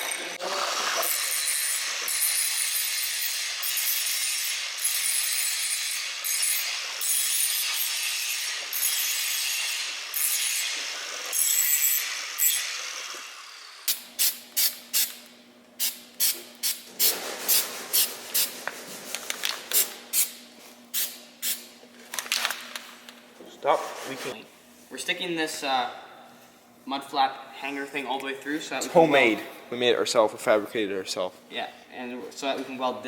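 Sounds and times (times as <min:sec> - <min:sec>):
tool scraping a surface: 0:23.7 - 0:24.4.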